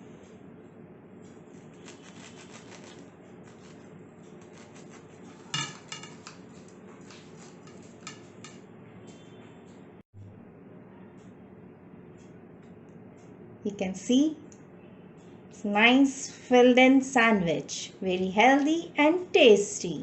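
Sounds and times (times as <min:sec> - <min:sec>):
knife sawing through toasted bread: 0:01.5 - 0:05.6, 0:06.2 - 0:08.1
metal clink: 0:05.5 - 0:06.4.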